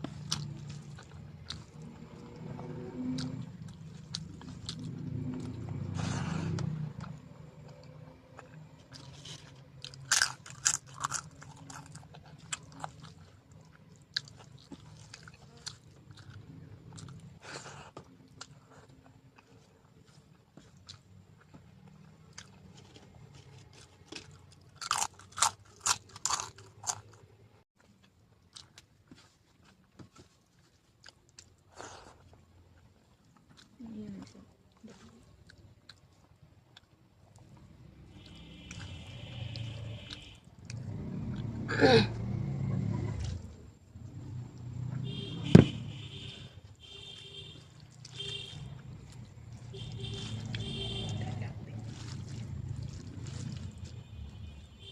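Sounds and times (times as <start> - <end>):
person chewing crunchy food: 0.0 - 41.6, 46.1 - 54.8
slurp: 51.9 - 53.8.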